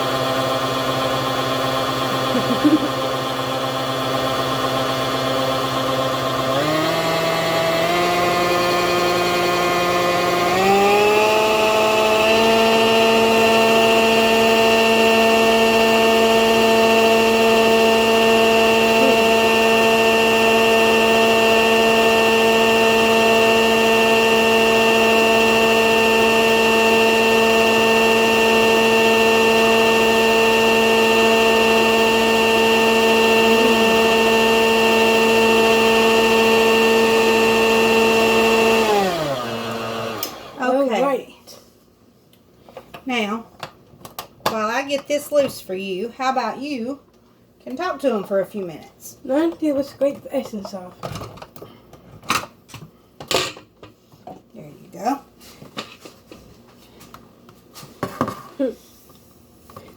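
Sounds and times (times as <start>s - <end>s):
electric hand mixer whirring: 0.0s - 41.3s.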